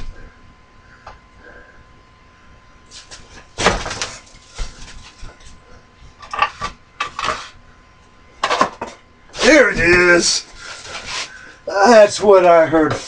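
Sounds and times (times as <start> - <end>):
objects knocking and clattering: 8.4 - 9.0.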